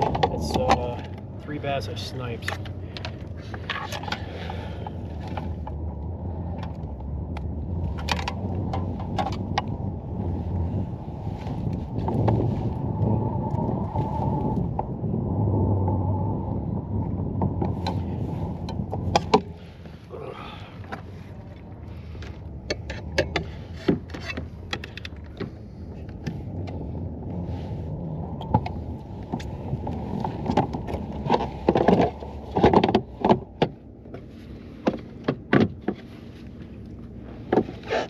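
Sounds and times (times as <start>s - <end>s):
knocks and clicks: 22.6s - 25.6s.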